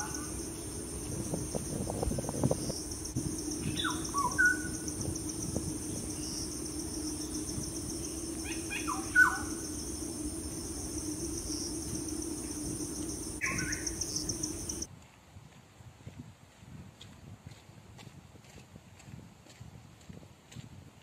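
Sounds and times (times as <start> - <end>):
low steady hum: 0.0 - 14.9
pulsing insect trill: 0.0 - 14.9
falling bird calls: 2.4 - 14.9.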